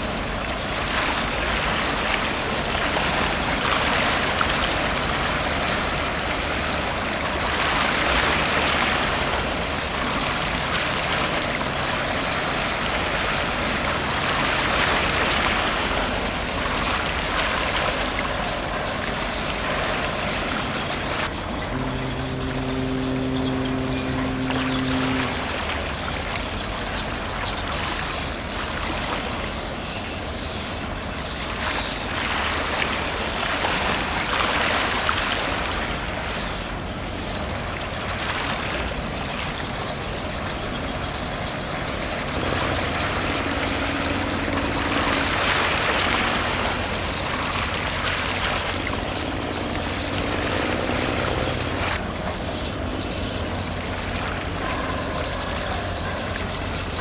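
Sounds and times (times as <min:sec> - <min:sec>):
ship engine rumble: 0:00.0 - 0:31.4, 0:32.5 - 0:57.0
water wash from wake: 0:00.0 - 0:57.0.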